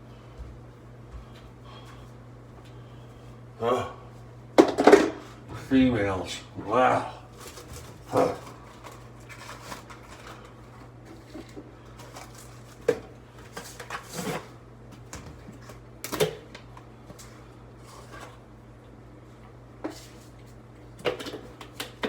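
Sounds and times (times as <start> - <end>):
steady low hum: 0.0 - 22.0
items knocking and clattering: 4.6 - 5.2.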